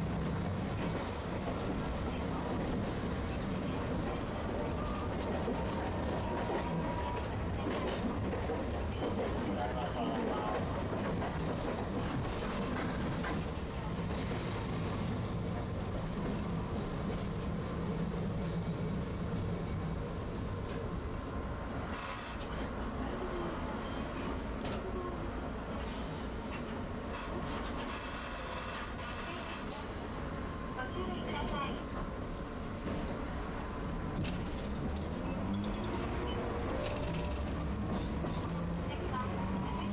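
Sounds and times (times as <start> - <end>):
streetcar rumbling on rails: 0.0 - 39.9
high-pitched wheel squeal: 21.9 - 22.6, 27.2 - 29.8.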